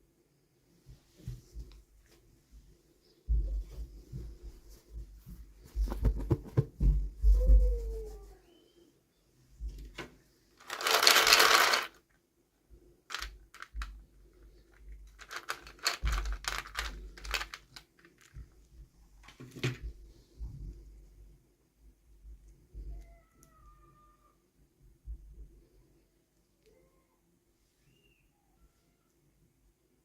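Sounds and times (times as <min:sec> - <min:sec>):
packaging rustling: 0:10.6 - 0:12.0, 0:13.1 - 0:13.8, 0:15.0 - 0:18.4
plastic pieces clicking and tapping: 0:10.6 - 0:12.0, 0:13.1 - 0:14.0, 0:14.7 - 0:18.5.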